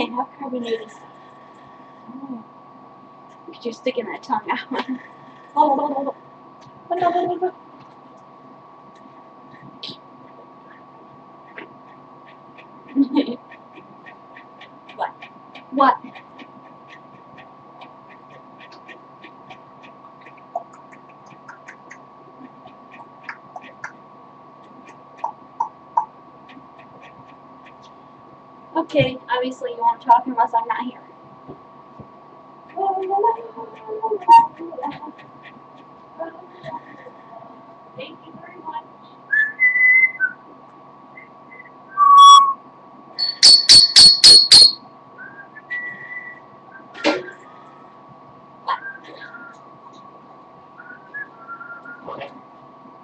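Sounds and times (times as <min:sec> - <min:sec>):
faint high hum: 0:00.0 - 0:53.0
parrot whistling: 0:39.3 - 0:40.4, 0:41.2 - 0:42.6, 0:43.2 - 0:46.4
parrot soft chirps: 0:43.2 - 0:44.8.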